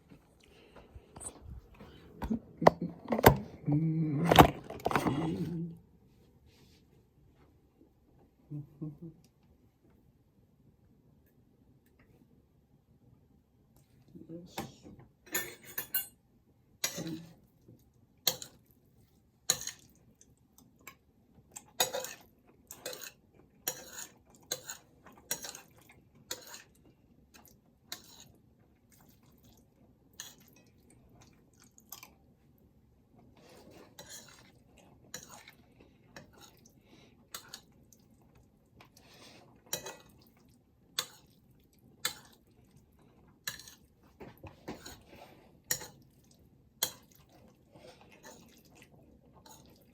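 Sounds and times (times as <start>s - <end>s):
utensils clinking against dish: 15.3s - 16.2s.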